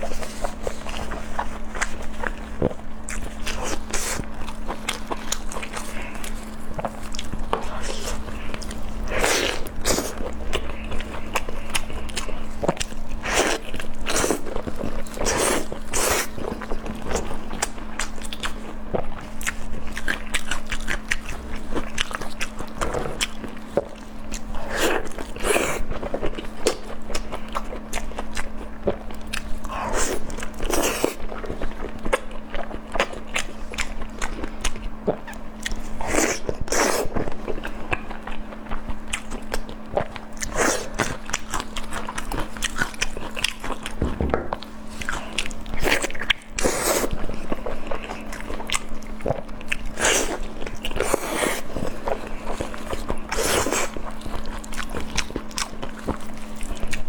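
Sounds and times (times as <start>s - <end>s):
faint hum: 0.0s - 57.0s
person chewing food: 0.0s - 57.0s.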